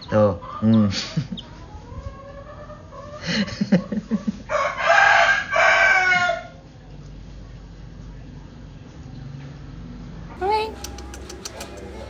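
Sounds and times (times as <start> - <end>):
rooster crowing: 4.5 - 6.6
low clucks: 10.6 - 12.0.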